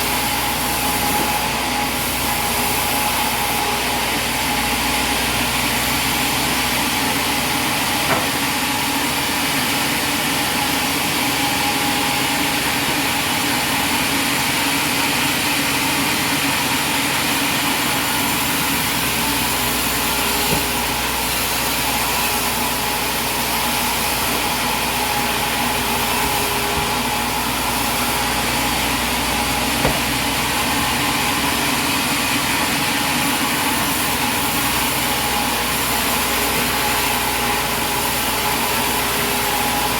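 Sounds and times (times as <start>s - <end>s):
sawmill machinery humming and whining: 0.0s - 39.9s
short knocks: 7.9s - 8.6s, 20.2s - 21.4s, 25.9s - 31.0s.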